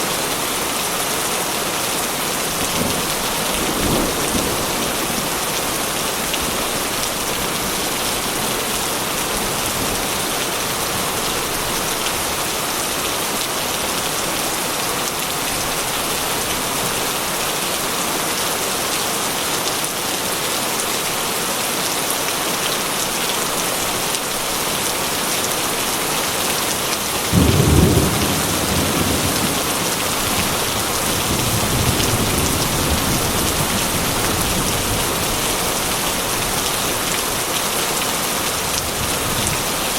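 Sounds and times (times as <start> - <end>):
heavy rain falling: 0.0 - 39.9
rumble of thunder: 2.6 - 8.7, 27.3 - 35.3.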